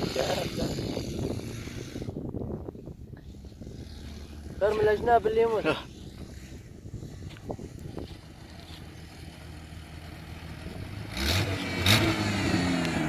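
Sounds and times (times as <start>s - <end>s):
car engine revving: 3.4s - 13.0s.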